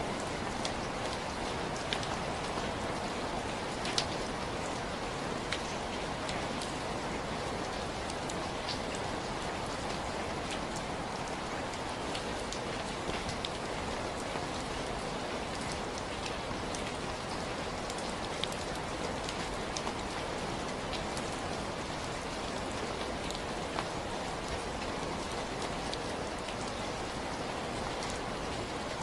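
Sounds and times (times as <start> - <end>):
steady rainfall: 0.0 - 29.0.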